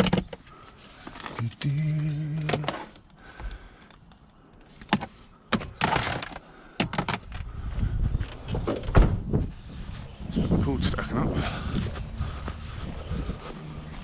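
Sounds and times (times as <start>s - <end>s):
knocks and clunks: 4.8s - 7.5s, 8.2s - 9.6s
low rumble: 7.8s - 14.0s.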